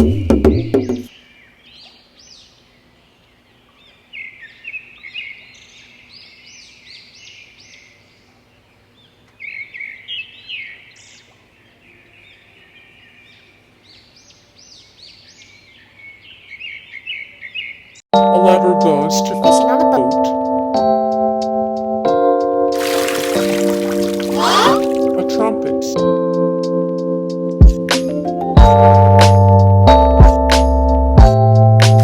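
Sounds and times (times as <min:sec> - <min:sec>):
birds chirping: 0:22.8 - 0:25.7.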